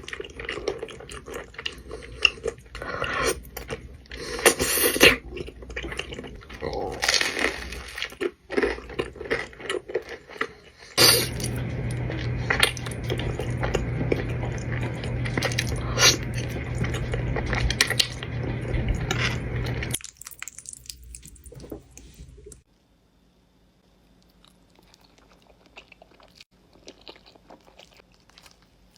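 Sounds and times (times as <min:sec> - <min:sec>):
steady hum and hiss: 0:00.0 - 0:08.5, 0:10.8 - 0:20.0
chewing cheesy food: 0:00.0 - 0:22.6, 0:24.1 - 0:28.9.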